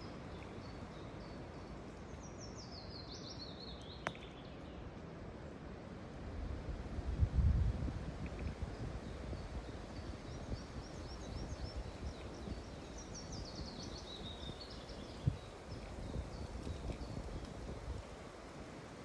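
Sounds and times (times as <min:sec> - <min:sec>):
low rumbling outdoor noise: 0:00.0 - 0:19.0
songbird chirping and trilling: 0:09.4 - 0:17.5.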